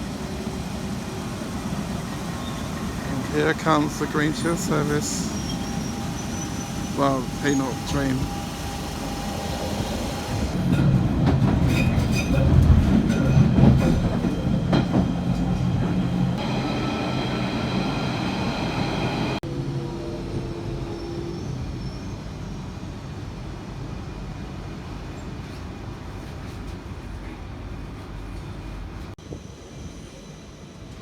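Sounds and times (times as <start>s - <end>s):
steady train rumble: 0.0s - 31.0s
train wheels clattering and squealing: 2.0s - 16.3s.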